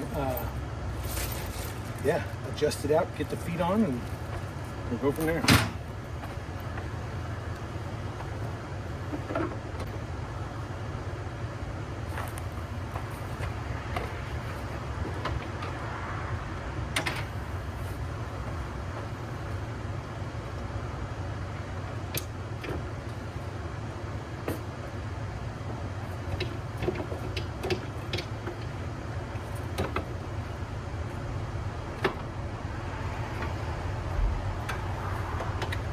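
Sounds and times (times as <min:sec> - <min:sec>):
steady low rumble: 0:29.0 - 0:35.9.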